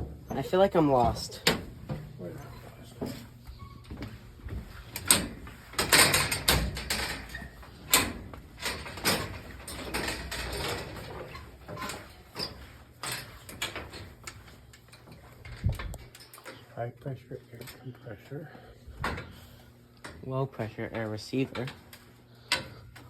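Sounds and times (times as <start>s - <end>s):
knocks and clanks on steel: 3.9s - 14.4s.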